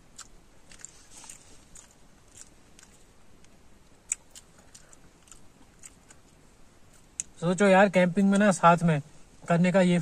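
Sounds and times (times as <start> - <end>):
person chewing: 0.0 - 7.4.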